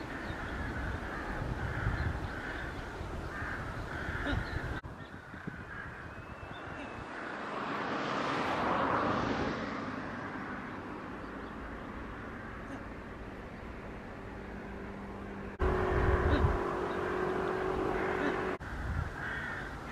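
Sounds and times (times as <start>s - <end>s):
crow cawing: 0.0s - 6.4s, 12.1s - 13.0s, 17.8s - 19.9s
broad rushing noise: 6.7s - 19.9s.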